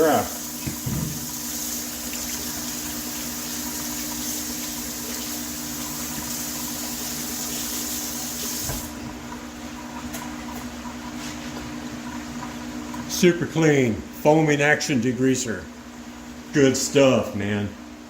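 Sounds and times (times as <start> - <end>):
water running from a tap: 0.0 - 13.2
tap shutting off knock: 0.6 - 1.4, 8.6 - 9.2.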